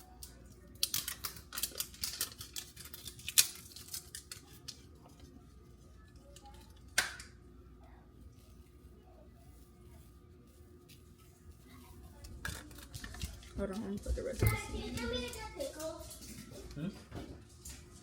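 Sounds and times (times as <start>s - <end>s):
spice shaker rattling: 0.7s - 4.8s, 12.1s - 13.6s.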